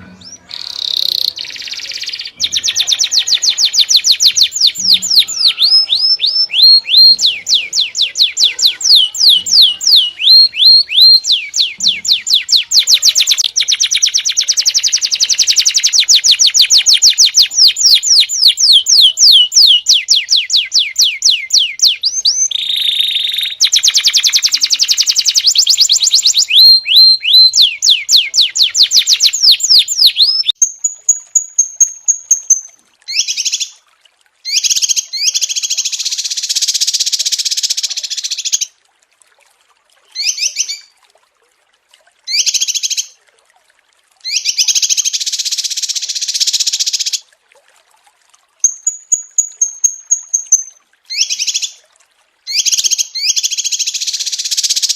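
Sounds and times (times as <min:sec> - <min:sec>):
small songbirds singing: 0:00.0 - 0:33.8.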